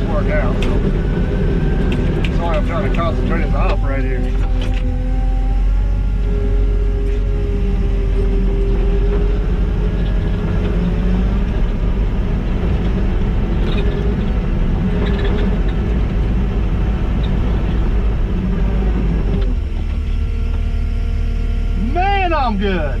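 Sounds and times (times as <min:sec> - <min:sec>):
diesel engine running: 0:00.0 - 0:23.0
wavering whine: 0:00.0 - 0:23.0.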